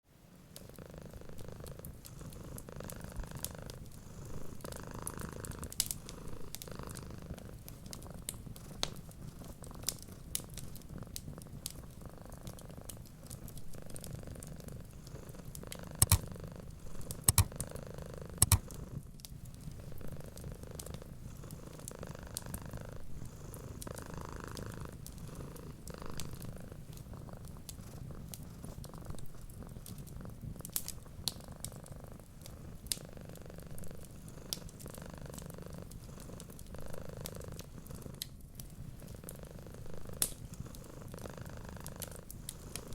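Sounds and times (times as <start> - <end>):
cat purring: 0.4 - 42.9
wood fire crackling and popping: 4.7 - 16.4, 18.4 - 19.7, 26.1 - 33.0, 37.3 - 39.3, 40.0 - 40.9, 41.8 - 42.9.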